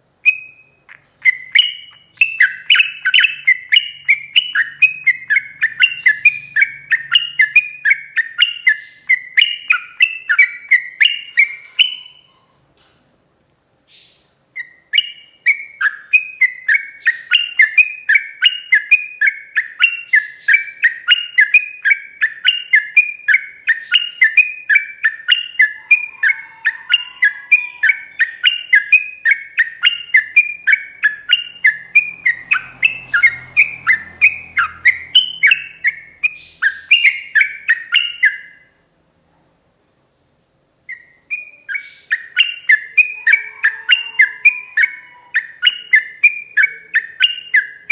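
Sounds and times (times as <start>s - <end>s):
bulbul singing repeated notes: 14.0s - 38.6s.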